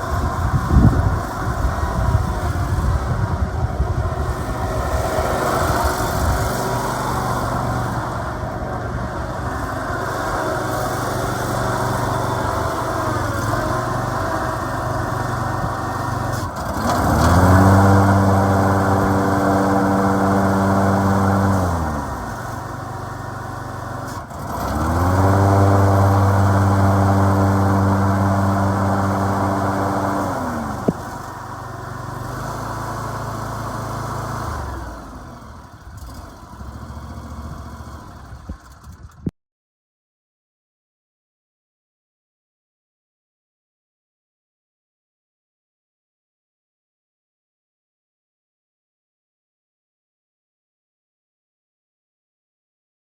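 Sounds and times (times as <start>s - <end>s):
mower engine idling and revving: 0.0s - 39.3s.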